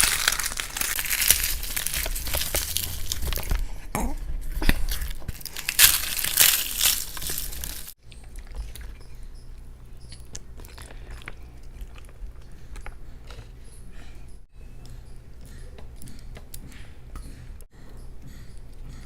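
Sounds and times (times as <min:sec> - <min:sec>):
crunchy fried food crunching: 0:00.0 - 0:09.0, 0:10.0 - 0:13.4
quiet chewing with mouth clicks: 0:08.0 - 0:19.0.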